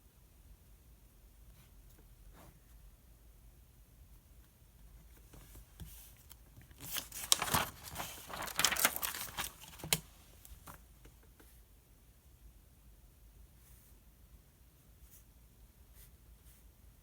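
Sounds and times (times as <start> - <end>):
paper pages turning: 6.7 - 10.8.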